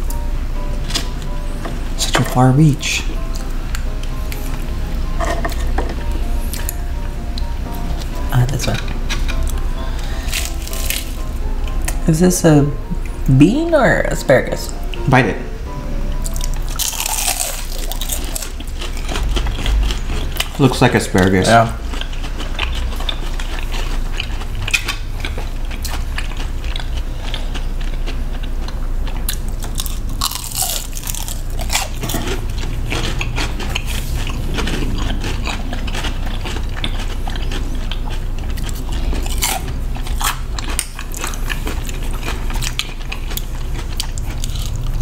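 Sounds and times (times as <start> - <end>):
chewing and crunching food: 6.5 - 12.0, 16.2 - 45.0
low hum: 21.8 - 45.0.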